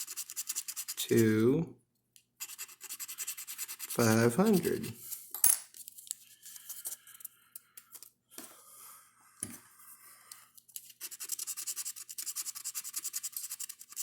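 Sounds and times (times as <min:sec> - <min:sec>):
scratching lottery ticket: 0:00.0 - 0:01.0, 0:02.4 - 0:05.0, 0:10.8 - 0:14.0.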